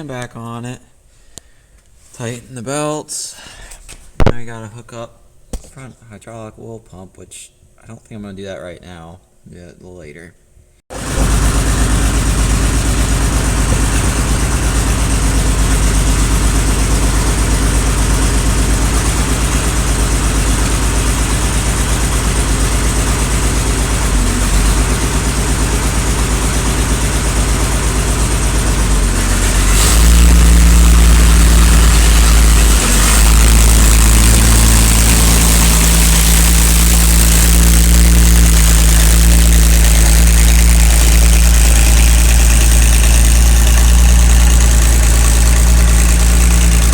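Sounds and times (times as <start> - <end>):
tractor diesel engine running: 10.9 - 46.9.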